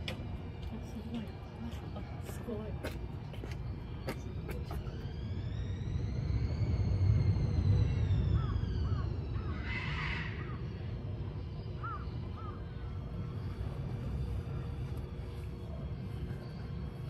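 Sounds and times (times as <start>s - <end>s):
steady low rumble: 0.0s - 17.0s
birds chirping: 8.3s - 17.0s
harsh caw-like bird call: 8.4s - 10.8s, 11.8s - 12.6s.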